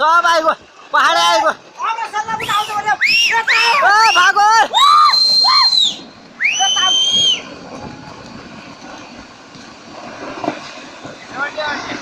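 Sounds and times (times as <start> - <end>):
rushing rumble: 0.0 - 12.0
high-pitched screams: 2.4 - 7.5.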